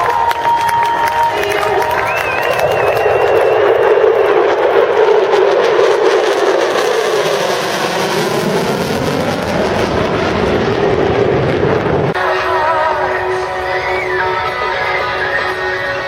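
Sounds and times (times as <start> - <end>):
music: 0.0 - 2.7, 12.2 - 16.0
fighter jet flying past: 0.7 - 12.2.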